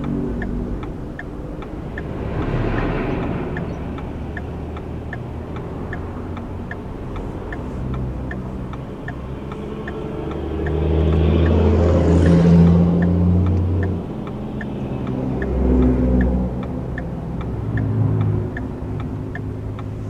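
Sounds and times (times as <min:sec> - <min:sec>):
car engine and road rumble: 0:00.0 - 0:20.0
turn signal ticking: 0:00.0 - 0:20.0.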